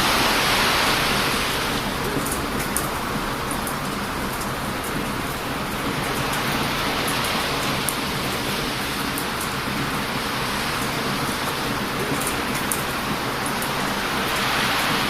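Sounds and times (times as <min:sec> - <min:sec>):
bonfire crackling: 0:00.0 - 0:15.0
ocean surf washing onto beach: 0:00.0 - 0:15.0.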